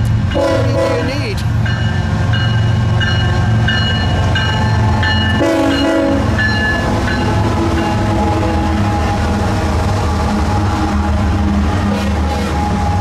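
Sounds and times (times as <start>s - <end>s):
freight locomotives rumbling: 0.0s - 13.0s
train horn blast: 0.4s - 1.1s, 4.9s - 6.4s, 7.4s - 13.0s.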